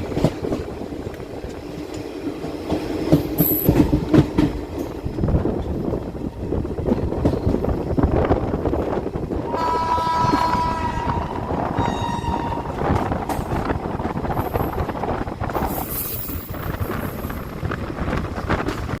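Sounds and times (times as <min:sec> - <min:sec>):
train rumble: 0:00.0 - 0:19.0
train wheels clattering on rails: 0:00.0 - 0:19.0
train horn: 0:09.5 - 0:13.1.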